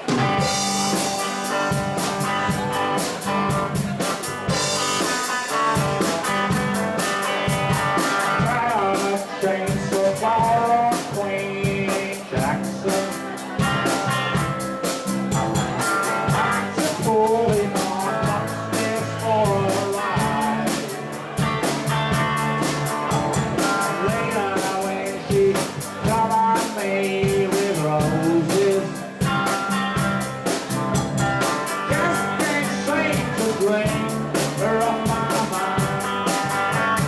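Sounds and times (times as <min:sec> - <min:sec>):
drum kit beat: 0:00.0 - 0:37.0
rock band playing: 0:00.0 - 0:37.0
person singing: 0:07.1 - 0:15.0, 0:15.8 - 0:22.0, 0:23.6 - 0:29.8, 0:31.6 - 0:37.0.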